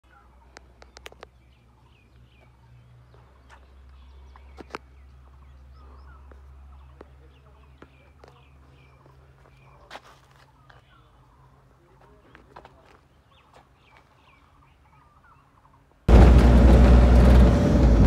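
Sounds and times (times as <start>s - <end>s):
small birds chirping: 0.0s - 16.1s
low steady rumble: 16.1s - 18.0s.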